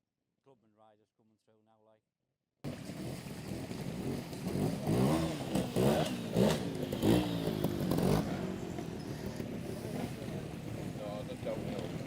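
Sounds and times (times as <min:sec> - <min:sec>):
motorcycle engine revving: 0:02.7 - 0:12.0.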